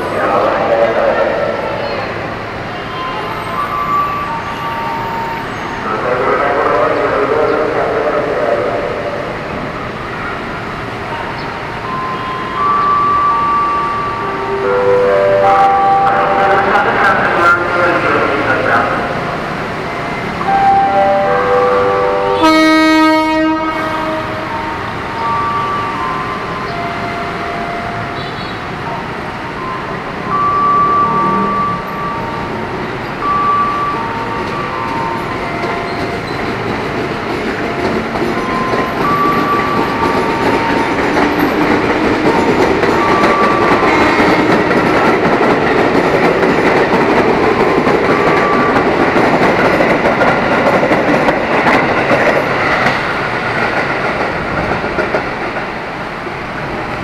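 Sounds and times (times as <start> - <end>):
train wheels rumbling on rails: 0.0 - 57.0
train horn blast: 21.3 - 24.5.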